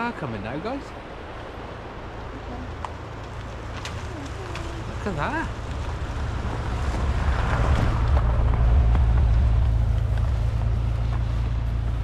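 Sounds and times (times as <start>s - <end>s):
old car driving past: 3.6s - 12.0s.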